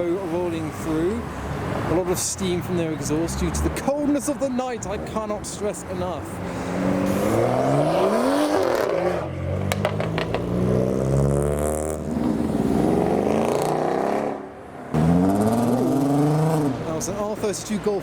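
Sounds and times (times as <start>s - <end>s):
car engine revving: 6.6s - 17.0s.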